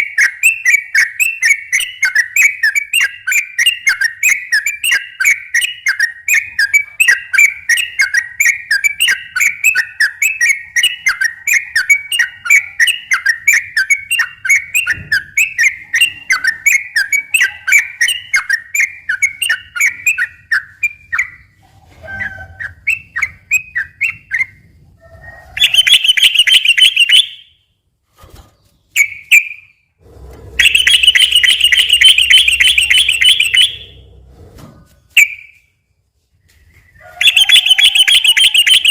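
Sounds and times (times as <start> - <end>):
bird repeated chirping notes: 0.0 - 24.7, 25.6 - 27.8, 28.8 - 29.9, 30.6 - 34.2, 36.7 - 38.9
bird rattling trills: 30.6 - 34.0.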